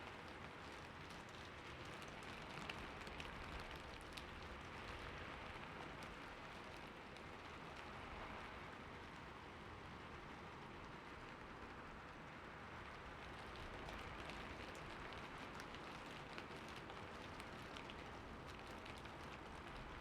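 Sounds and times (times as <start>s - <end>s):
raindrops ticking: 13.4s - 20.0s.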